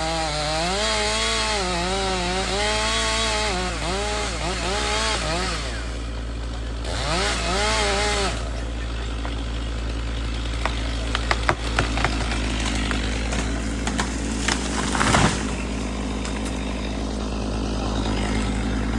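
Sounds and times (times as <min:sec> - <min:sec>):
chainsaw revving: 0:00.0 - 0:18.9
sharp cracks and snaps: 0:10.3 - 0:16.8.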